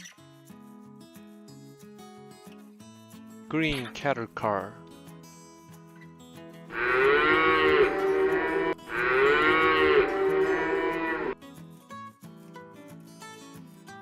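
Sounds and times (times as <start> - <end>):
acoustic guitar music: 0.0 - 14.0
cow mooing: 6.7 - 11.4.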